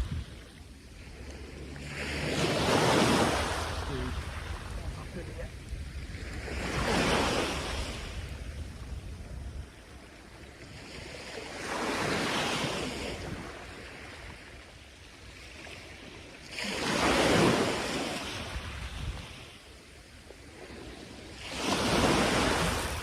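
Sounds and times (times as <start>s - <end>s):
sea surf breaking: 0.0s - 9.0s, 20.6s - 23.0s
wind rumble on microphone: 0.0s - 23.0s.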